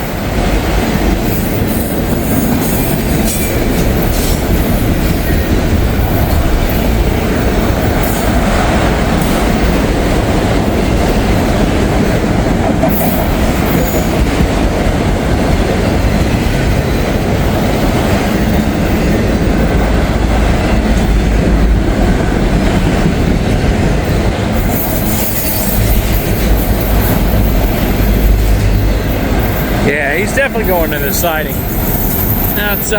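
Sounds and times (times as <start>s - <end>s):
train wheel squeal: 0.0s - 9.6s, 12.8s - 14.5s, 24.0s - 32.9s
freight train wheels clattering: 0.0s - 32.9s.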